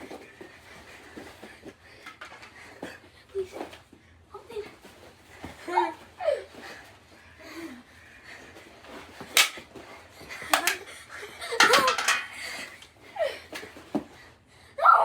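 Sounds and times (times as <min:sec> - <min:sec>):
hockey sticks smacking ball: 0:09.2 - 0:09.7, 0:10.5 - 0:10.8, 0:11.6 - 0:12.6.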